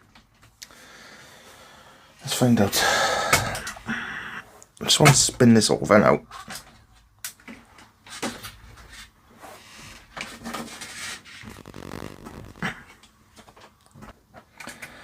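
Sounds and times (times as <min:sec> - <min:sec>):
rustling: 0:10.9 - 0:12.9.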